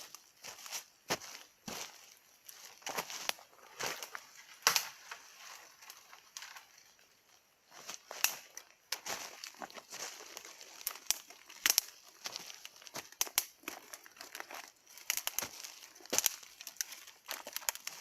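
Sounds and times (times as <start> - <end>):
campfire crackling and snapping: 8.0 - 18.0.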